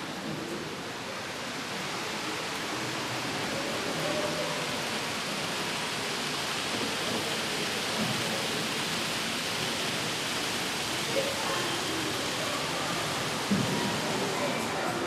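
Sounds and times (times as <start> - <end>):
faint voices: 10.7 - 15.0.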